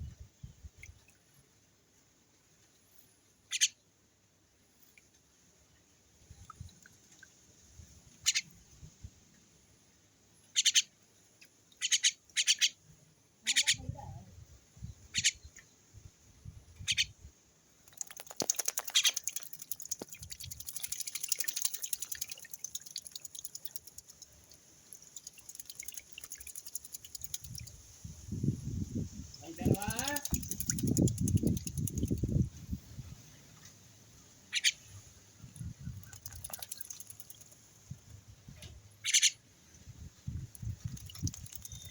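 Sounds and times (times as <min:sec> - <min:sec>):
small bird chirping: 0:03.5 - 0:03.8, 0:08.1 - 0:08.7, 0:10.5 - 0:11.0, 0:11.7 - 0:17.2, 0:17.9 - 0:32.5, 0:34.5 - 0:41.9
bird splashing wings in water: 0:17.8 - 0:27.8, 0:29.6 - 0:32.4, 0:35.9 - 0:37.7, 0:40.5 - 0:41.9.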